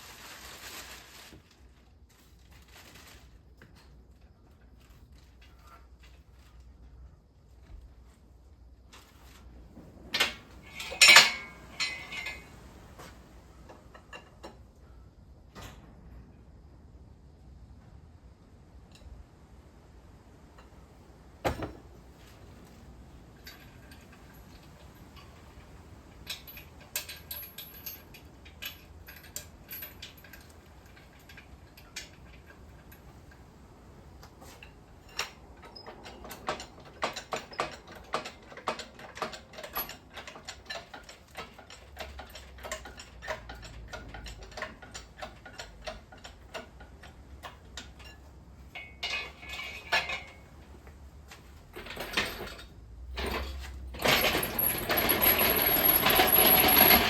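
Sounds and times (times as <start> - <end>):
metallic clicking of tools: 34.6 - 50.4.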